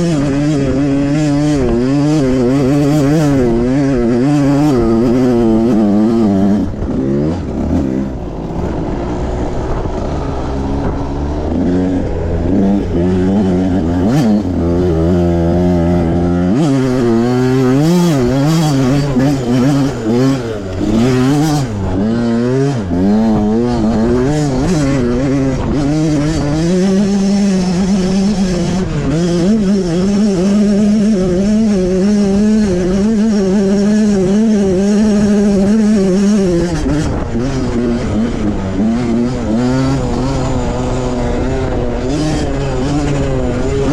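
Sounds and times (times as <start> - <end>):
pit bike engine revving: 0.0 - 43.9.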